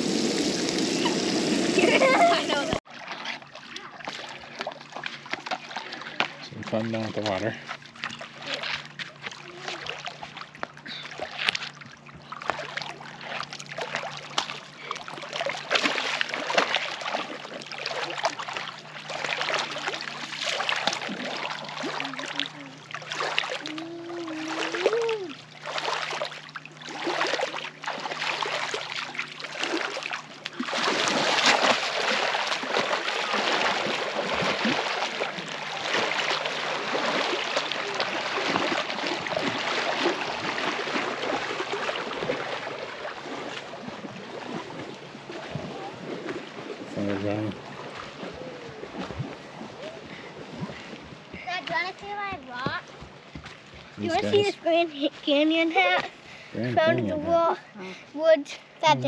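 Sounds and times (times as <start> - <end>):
water splashing: 0.0 - 57.6
voice calling out: 23.6 - 25.4, 56.6 - 57.4.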